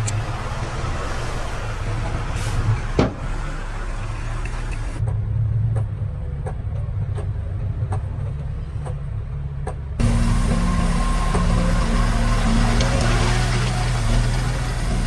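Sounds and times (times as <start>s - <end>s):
diesel machinery engine running: 0.0s - 5.4s, 10.0s - 15.0s.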